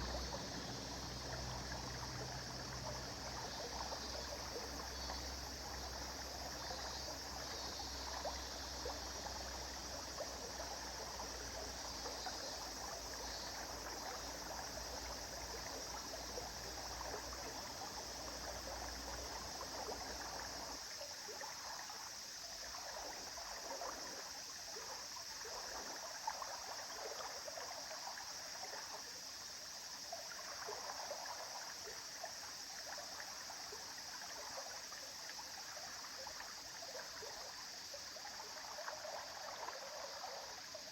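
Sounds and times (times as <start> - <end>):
river water babbling over stones: 0.0 - 40.9.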